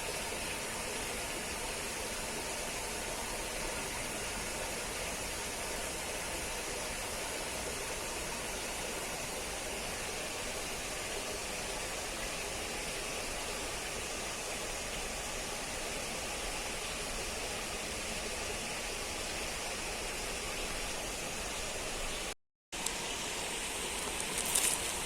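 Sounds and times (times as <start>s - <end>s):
water running: 22.8s - 25.0s.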